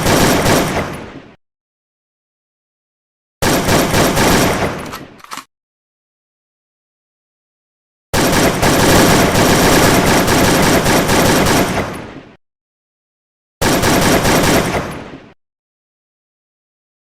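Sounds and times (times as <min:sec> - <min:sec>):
automatic gunfire bursts: 0:00.0 - 0:00.9, 0:03.4 - 0:05.5, 0:08.2 - 0:11.9, 0:13.6 - 0:14.9.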